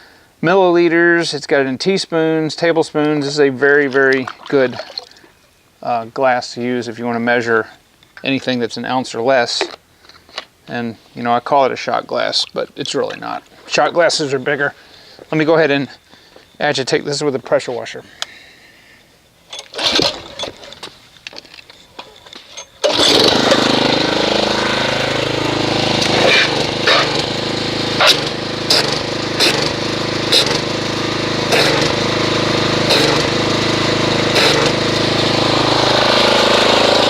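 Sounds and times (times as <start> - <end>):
pressure washer spraying water: 22.9 - 37.0.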